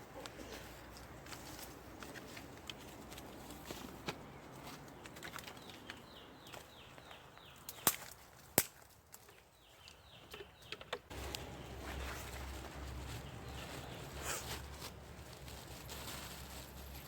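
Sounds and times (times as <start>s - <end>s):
bird chirping: 4.2s - 8.1s, 9.2s - 14.7s.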